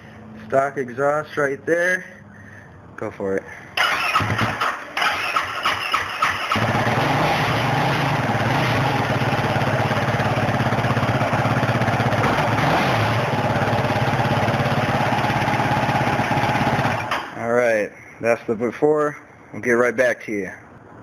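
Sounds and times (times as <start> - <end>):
quad engine cranking and idling: 3.8 - 17.4.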